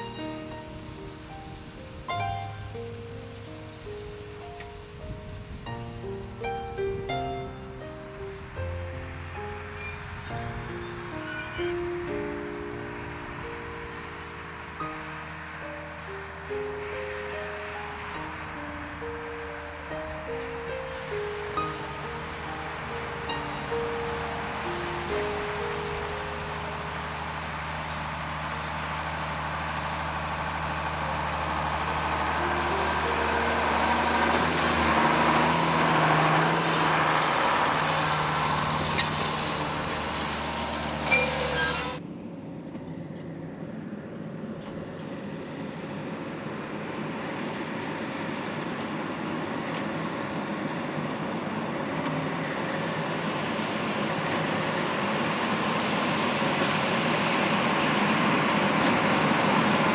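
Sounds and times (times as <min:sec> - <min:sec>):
tractor engine running: 0:12.0 - 0:59.9
dull machinery running: 0:20.1 - 0:42.0.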